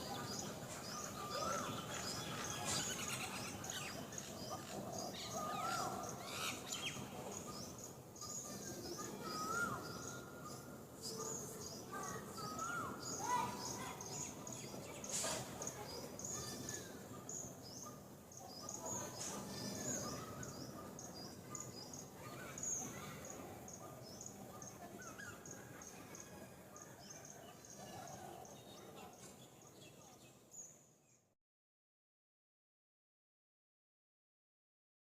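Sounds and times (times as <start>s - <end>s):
birds chirping: 0.0s - 31.2s.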